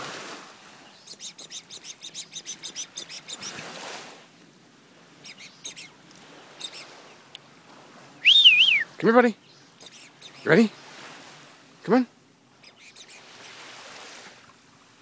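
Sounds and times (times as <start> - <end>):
small bird chirping: 1.0 - 3.6, 5.2 - 6.0, 6.6 - 6.9, 9.4 - 10.7, 12.6 - 13.7.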